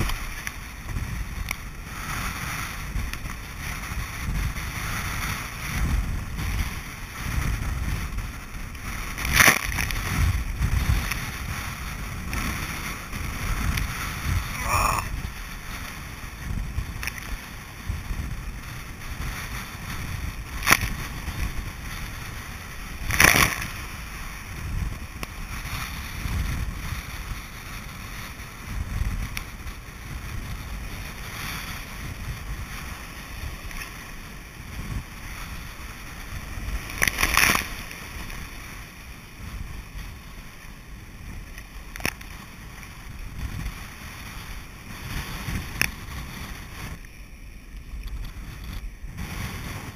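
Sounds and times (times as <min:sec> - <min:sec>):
wind rumble on microphone: 0:00.0 - 0:49.9.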